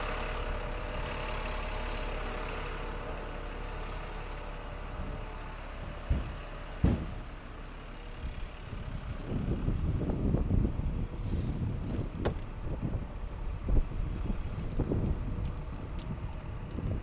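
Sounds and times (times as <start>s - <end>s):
vehicle engine idling: 0.0s - 17.0s
sharp thumps: 6.0s - 7.4s.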